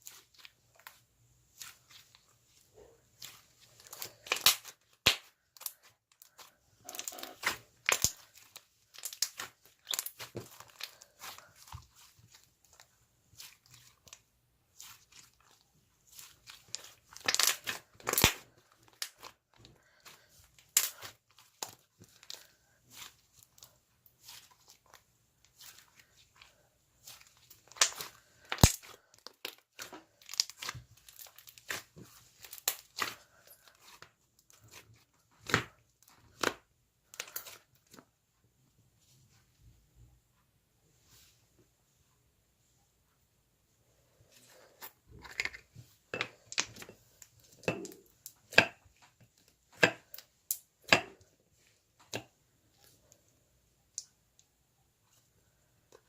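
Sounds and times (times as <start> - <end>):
slime squished by hand: 0.0 - 38.0.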